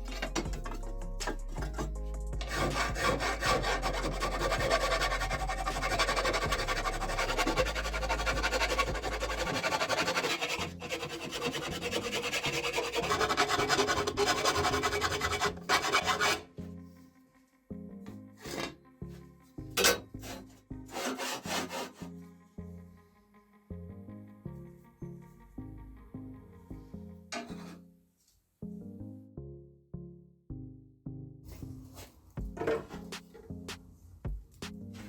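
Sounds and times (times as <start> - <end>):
tool rasping and scraping: 0.0 - 16.7, 18.4 - 18.8, 19.8 - 22.2, 27.3 - 27.8, 31.6 - 33.6
background music: 0.0 - 28.0, 28.6 - 35.0.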